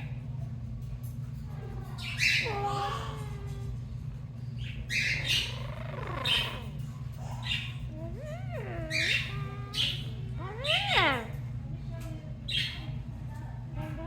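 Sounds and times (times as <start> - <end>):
steady low hum: 0.0 - 14.0
parrot squawking: 2.0 - 3.6, 4.9 - 6.8, 7.4 - 11.4.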